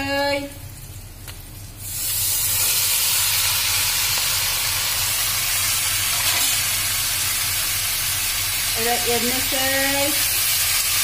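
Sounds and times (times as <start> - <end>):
vegetables sizzling in hot oil: 0.1 - 11.0.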